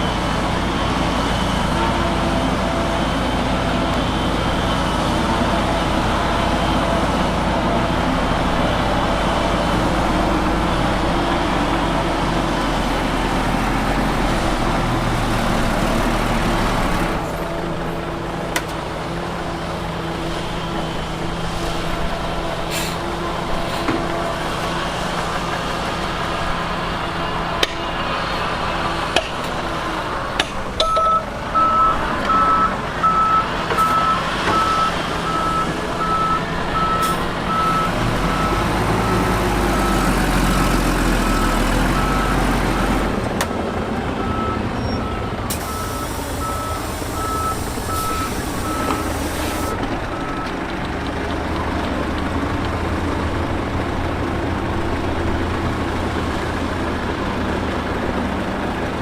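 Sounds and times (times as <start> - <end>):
heavy diesel machinery running: 0.0 - 59.0
reversing alarm beeping: 30.8 - 43.0, 44.1 - 50.6.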